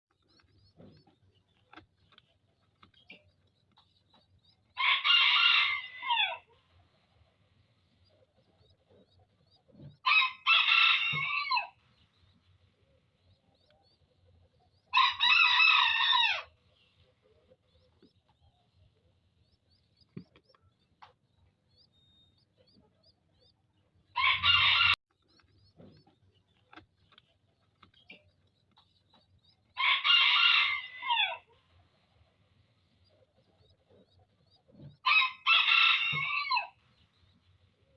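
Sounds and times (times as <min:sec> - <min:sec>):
faint small chirps and ticks: 0:00.1 - 0:04.9, 0:06.5 - 0:10.1, 0:11.1 - 0:15.3, 0:16.5 - 0:29.9, 0:31.4 - 0:35.1, 0:36.0 - 0:37.9
rooster crowing: 0:04.8 - 0:06.4, 0:10.0 - 0:11.8, 0:14.9 - 0:16.5, 0:24.2 - 0:25.0, 0:29.8 - 0:31.5, 0:35.0 - 0:36.8.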